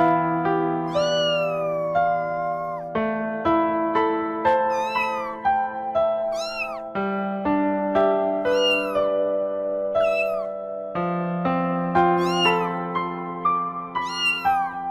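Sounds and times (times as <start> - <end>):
piano music: 0.0 - 14.9
cat meowing: 0.8 - 3.0, 4.5 - 5.5, 6.2 - 6.9, 8.4 - 9.2, 10.0 - 10.6, 12.1 - 12.9, 14.0 - 14.9.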